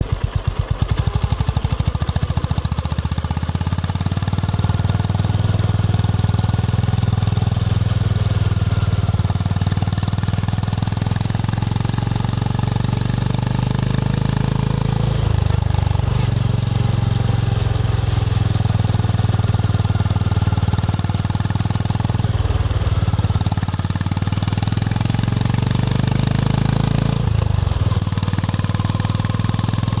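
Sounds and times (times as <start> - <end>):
motorcycle engine thumping: 0.0 - 6.4.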